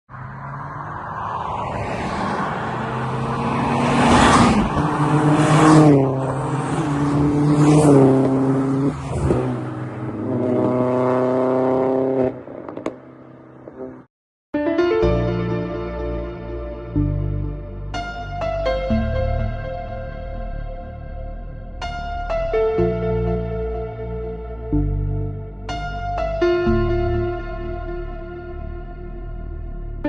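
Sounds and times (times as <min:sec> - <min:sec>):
car engine accelerating: 0:00.1 - 0:14.1.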